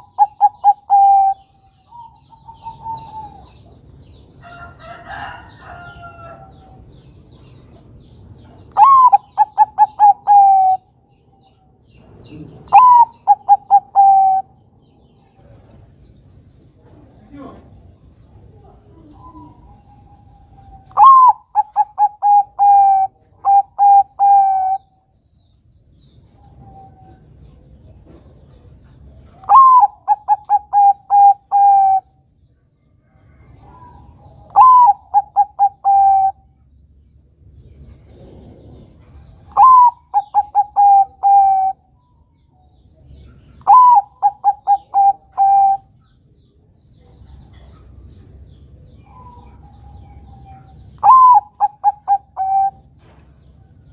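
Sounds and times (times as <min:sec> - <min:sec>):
dove cooing: 0:00.0 - 0:03.9, 0:08.6 - 0:10.9, 0:12.2 - 0:14.6, 0:18.4 - 0:25.0, 0:29.3 - 0:32.2, 0:33.4 - 0:36.6, 0:37.8 - 0:42.0, 0:43.3 - 0:46.0, 0:49.0 - 0:53.8.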